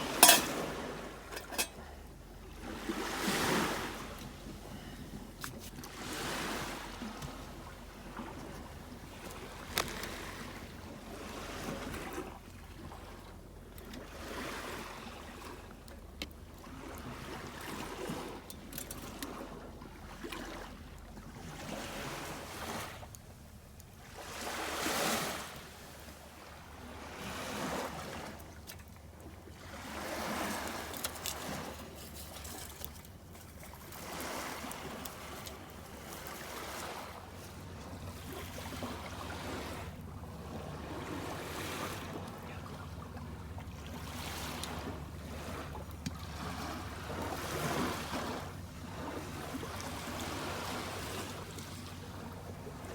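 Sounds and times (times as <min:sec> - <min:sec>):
small waves washing onto shore: 0:00.0 - 0:12.4, 0:24.0 - 0:28.8, 0:29.6 - 0:52.9.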